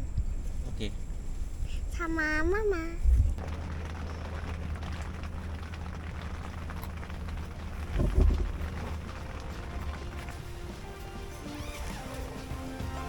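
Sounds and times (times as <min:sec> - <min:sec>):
rain pattering: 0:03.4 - 0:13.0
low thump: 0:07.8 - 0:09.1.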